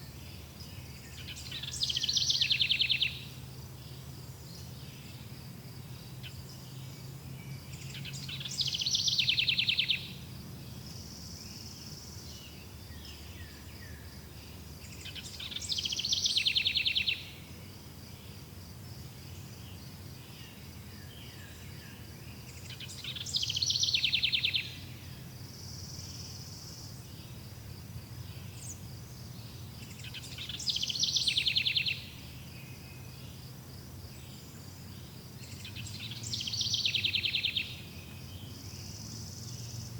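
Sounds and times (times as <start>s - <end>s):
soft bird chirps: 0.0s - 5.3s, 5.9s - 17.4s, 28.2s - 33.5s, 34.1s - 39.9s
songbird high trill: 7.7s - 10.2s, 35.4s - 39.8s.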